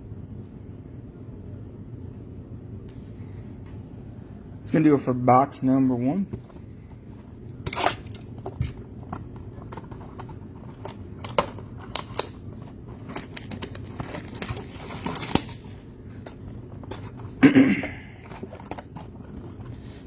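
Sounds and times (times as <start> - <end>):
card packaging crinkling: 6.4 - 17.4, 18.2 - 20.0.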